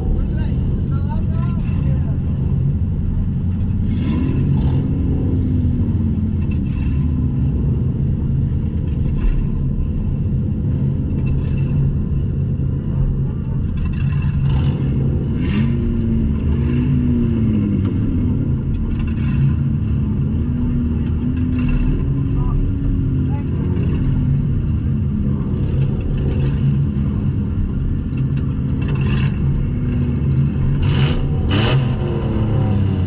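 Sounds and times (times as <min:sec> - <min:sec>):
car engine running loud: 0:00.0 - 0:33.0.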